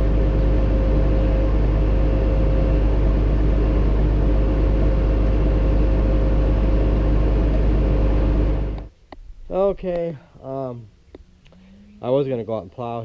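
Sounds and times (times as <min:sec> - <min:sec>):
tractor engine running: 0:00.0 - 0:08.9.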